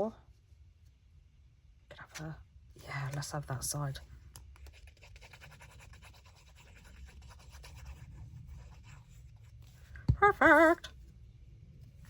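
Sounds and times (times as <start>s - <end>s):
paper rubbing and scratching: 4.6s - 9.9s.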